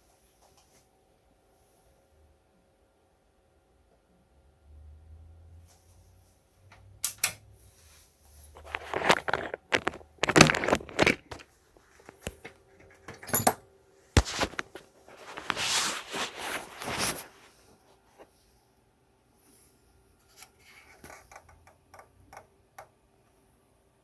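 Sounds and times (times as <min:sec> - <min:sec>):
tools and parts clicking: 0:12.1 - 0:13.6
rustling scrapes on workbench: 0:14.2 - 0:18.4.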